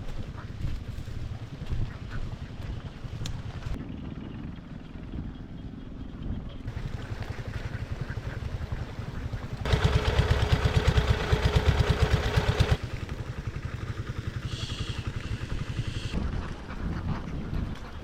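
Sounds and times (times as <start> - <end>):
small engine chugging: 6.7 - 17.0.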